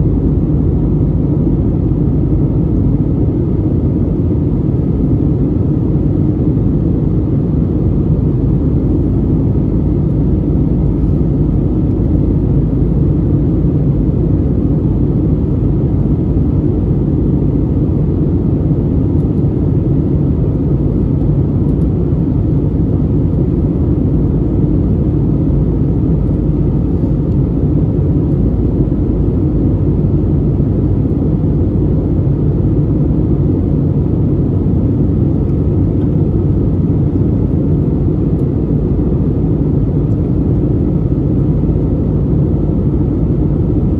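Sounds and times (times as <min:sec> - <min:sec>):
airplane cabin drone: 0:00.0 - 0:43.9.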